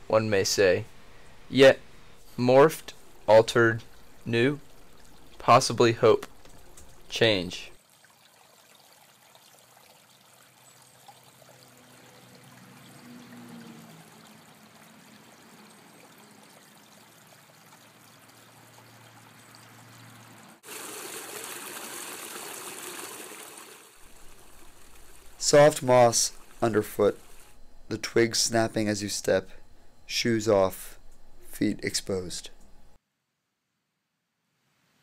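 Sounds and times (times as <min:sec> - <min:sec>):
water trickling: 0:02.6 - 0:30.0.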